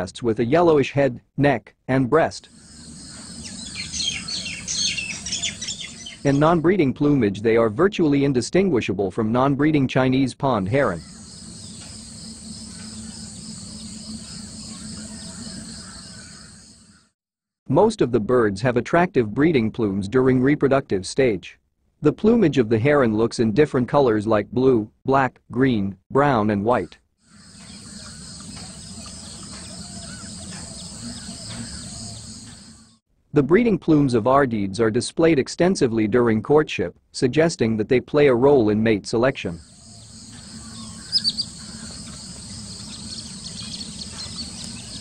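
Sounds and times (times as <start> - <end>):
insects buzzing: 2.5 - 6.4, 10.9 - 17.1, 27.2 - 33.0, 39.6 - 45.0
short bird chirps: 2.5 - 6.4, 39.6 - 45.0
low steady hum: 10.7 - 16.5, 39.4 - 45.0
low steady rumble: 10.8 - 16.0, 39.7 - 45.0.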